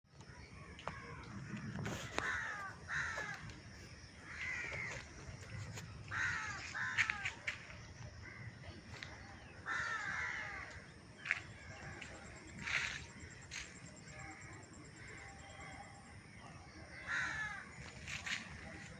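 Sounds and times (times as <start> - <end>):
crows cawing: 0.8 - 7.6, 9.4 - 15.5, 16.9 - 18.5.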